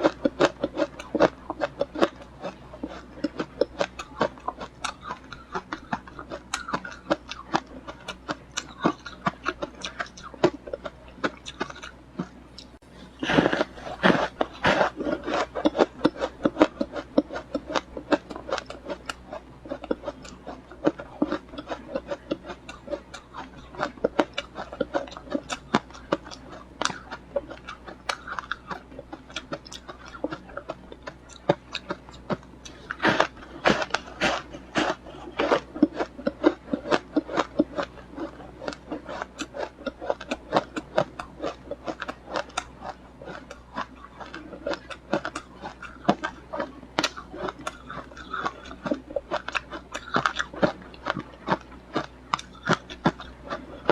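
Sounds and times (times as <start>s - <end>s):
person chewing ice: 0.0s - 53.9s.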